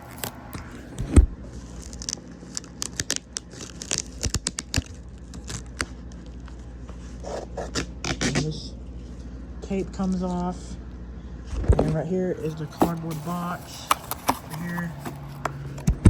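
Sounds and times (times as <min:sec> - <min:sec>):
packing tape peeling: 0:00.0 - 0:06.2, 0:12.4 - 0:15.9
packaging crackling and rustling: 0:00.0 - 0:06.7, 0:12.4 - 0:16.0.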